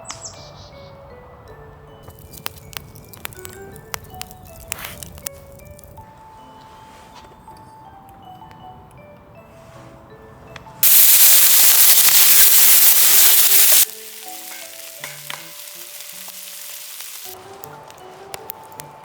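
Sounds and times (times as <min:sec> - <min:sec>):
soft background music: 0:00.0 - 0:10.8, 0:13.8 - 0:19.0
food sizzling in a hot pan: 0:10.8 - 0:17.4.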